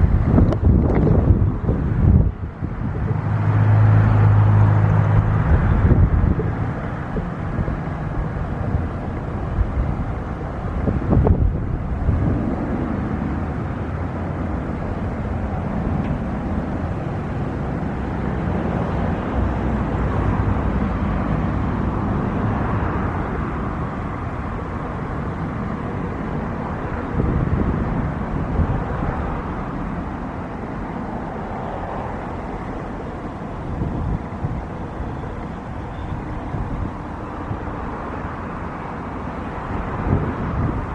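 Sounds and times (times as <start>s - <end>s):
jet airliner engine rushing: 0.0s - 40.9s.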